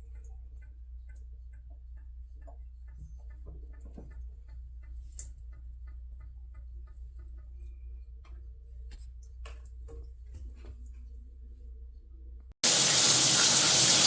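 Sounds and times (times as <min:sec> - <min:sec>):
low steady hum: 0:00.0 - 0:12.6
steady ticking: 0:00.1 - 0:07.9.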